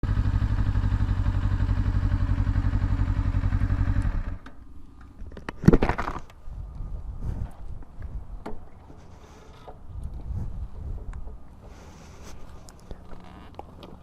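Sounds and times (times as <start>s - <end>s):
motorcycle engine running: 0.0s - 4.5s
clicks and clatter: 5.2s - 6.4s.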